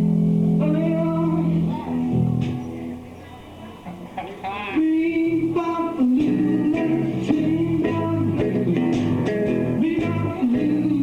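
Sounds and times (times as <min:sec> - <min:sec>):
bass line: 0:00.0 - 0:03.0, 0:05.3 - 0:11.0
bending lead guitar line: 0:00.0 - 0:05.6, 0:06.2 - 0:11.0
blues-rock band playing: 0:06.3 - 0:10.3.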